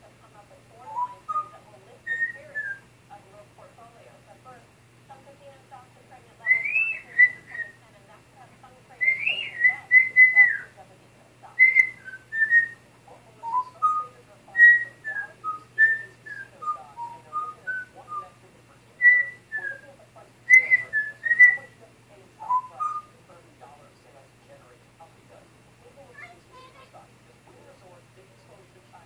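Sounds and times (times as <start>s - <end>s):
parrot whistling: 0.8s - 2.9s, 6.4s - 7.8s, 9.0s - 10.7s, 11.6s - 12.8s, 13.4s - 18.4s, 19.0s - 19.9s, 20.5s - 21.8s, 22.4s - 23.1s.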